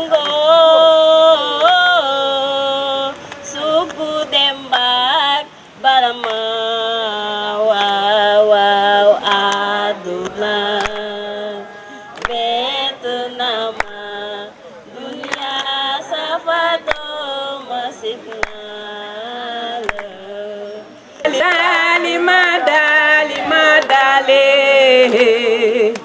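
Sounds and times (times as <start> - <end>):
voices singing a chant: 0.0 - 26.0
sharp knock or clap: 19.8 - 20.1.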